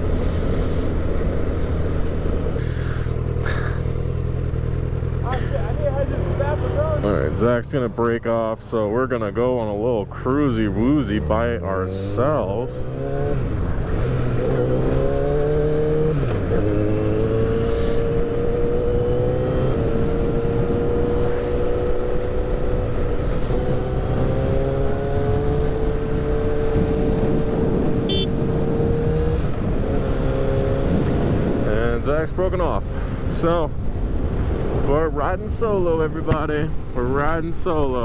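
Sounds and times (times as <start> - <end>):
motorcycle engine: 0.0 - 38.0
wind rumble on microphone: 13.0 - 38.0.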